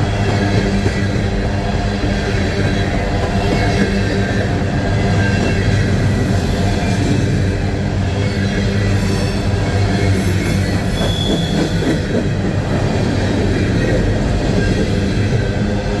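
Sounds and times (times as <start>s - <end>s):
freight train cars rolling past: 0.0s - 16.0s
wheels squealing on track: 8.9s - 12.0s.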